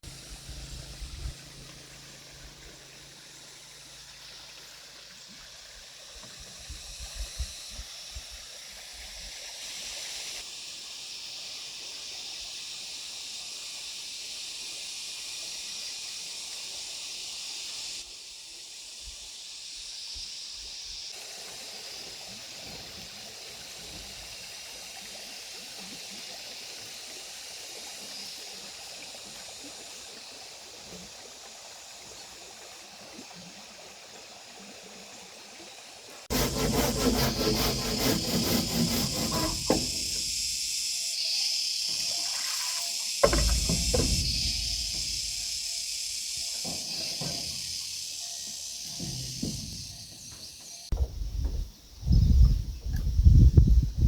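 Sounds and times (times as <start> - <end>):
flowing water rushing: 0.0 - 6.8, 41.9 - 49.8
low thumps: 43.2 - 45.6.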